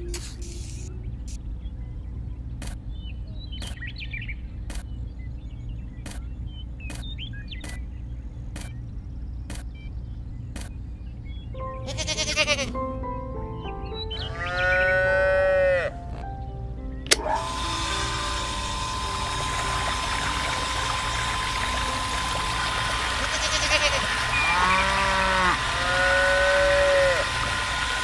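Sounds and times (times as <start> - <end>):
goat bleating: 11.8 - 12.8, 23.2 - 27.2
water pump motor whine: 17.1 - 28.0
water splashing: 17.5 - 28.0.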